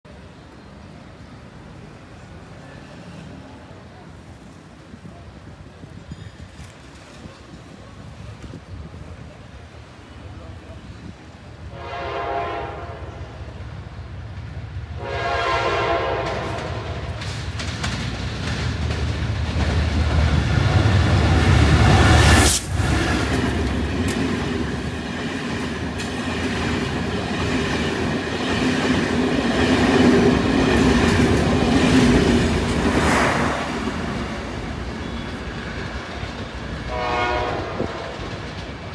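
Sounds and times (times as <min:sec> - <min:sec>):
train horn: 0:11.7 - 0:13.4, 0:15.0 - 0:17.1, 0:36.9 - 0:38.3
train wheels clattering: 0:16.0 - 0:37.0.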